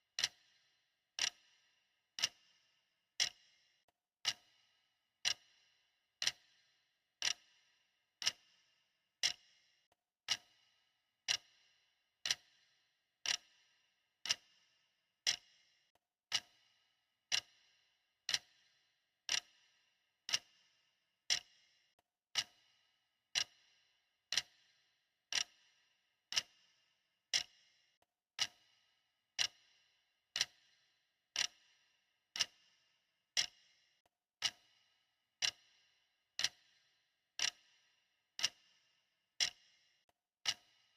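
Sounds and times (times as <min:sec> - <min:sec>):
clock ticking: 0:00.2 - 0:00.4, 0:01.2 - 0:01.4, 0:02.2 - 0:02.4, 0:05.2 - 0:05.5, 0:07.2 - 0:07.4, 0:12.2 - 0:12.5, 0:13.3 - 0:13.5, 0:14.2 - 0:14.4, 0:17.3 - 0:17.6, 0:18.3 - 0:18.5, 0:19.3 - 0:19.5, 0:22.3 - 0:22.6, 0:24.3 - 0:24.6, 0:25.3 - 0:25.6, 0:26.3 - 0:26.6, 0:27.3 - 0:27.5, 0:28.4 - 0:28.7, 0:29.4 - 0:29.6, 0:30.4 - 0:30.7, 0:31.4 - 0:31.6, 0:32.4 - 0:32.6, 0:33.4 - 0:33.6, 0:34.4 - 0:34.7, 0:35.4 - 0:35.6, 0:36.4 - 0:36.6, 0:37.4 - 0:37.6, 0:38.4 - 0:38.6.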